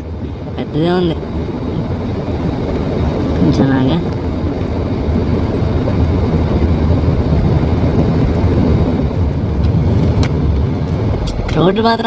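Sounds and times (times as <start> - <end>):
car driving on rough road: 0.0 - 12.0.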